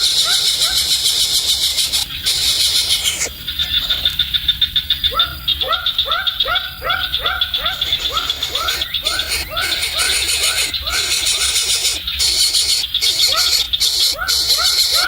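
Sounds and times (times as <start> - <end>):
fast-pulsing high insect trill: 0.0 - 4.2, 7.6 - 15.0
short animal calls: 7.6 - 15.0.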